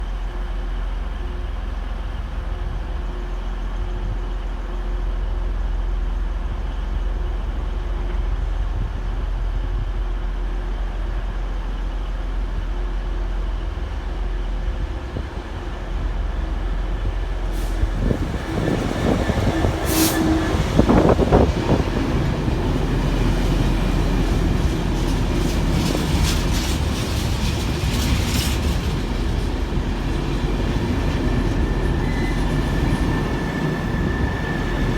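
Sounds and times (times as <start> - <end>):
freight train rumbling: 0.0 - 34.9
train wheels clanking and rattling: 13.7 - 34.9.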